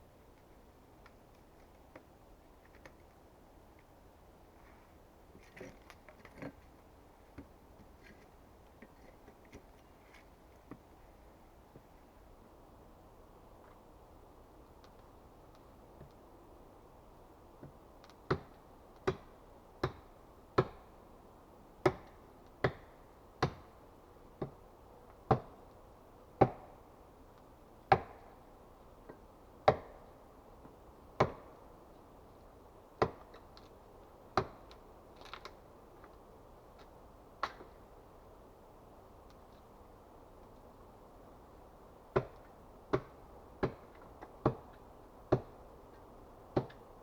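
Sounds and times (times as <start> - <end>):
axe chopping wood: 21.8 - 23.6, 27.9 - 28.3, 29.6 - 30.0, 31.2 - 31.5, 33.0 - 33.3, 42.1 - 44.7, 45.3 - 45.5, 46.5 - 46.8.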